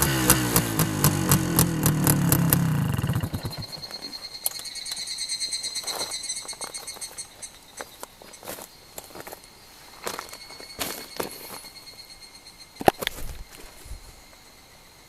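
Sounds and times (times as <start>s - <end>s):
motorcycle engine shutting off: 0.0s - 4.2s
insects chirring: 1.1s - 15.0s.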